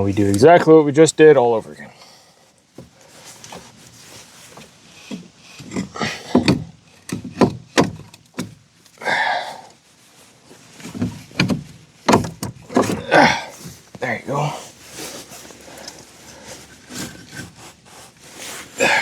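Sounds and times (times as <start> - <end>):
metal scrape: 14.8 - 18.8.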